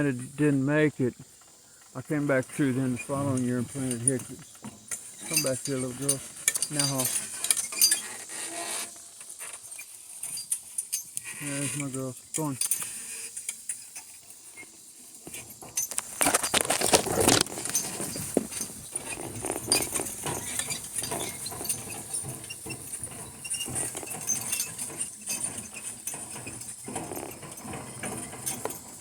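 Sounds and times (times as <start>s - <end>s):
rustling vegetation: 0.0s - 29.0s
harness jingling: 2.2s - 29.0s
donkey footfalls: 15.2s - 29.0s.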